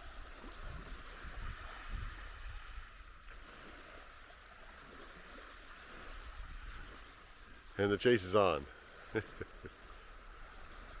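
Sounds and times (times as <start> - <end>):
wind gusting on microphone: 0.0 - 4.0
surf hissing on shore: 0.0 - 11.0.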